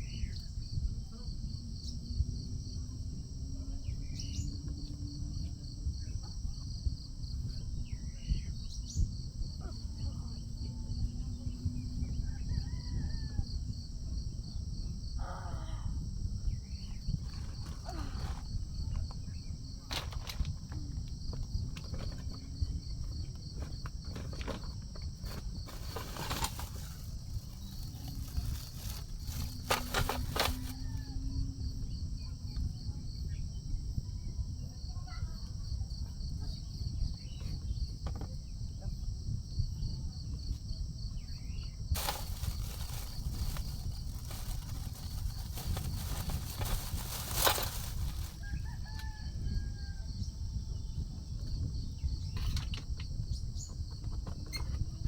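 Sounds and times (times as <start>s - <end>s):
insects chirping trill: 0.0s - 55.0s
rustling: 25.2s - 31.0s, 42.0s - 48.8s.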